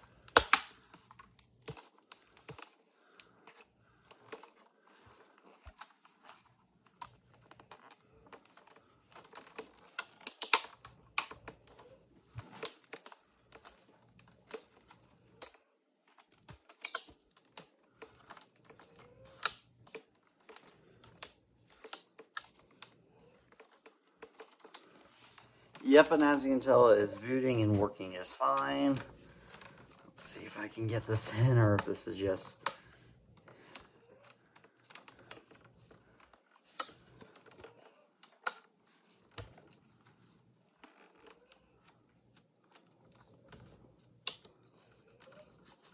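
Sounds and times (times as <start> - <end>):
plastic clicks and taps: 0.3 - 1.0.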